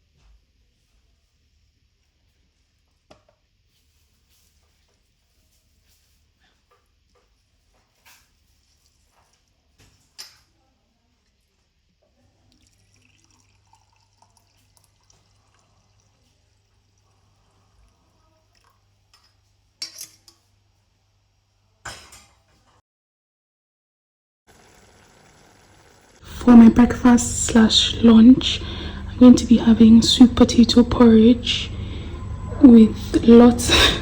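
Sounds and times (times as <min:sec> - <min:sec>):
faint low hum: 0:26.2 - 0:34.0.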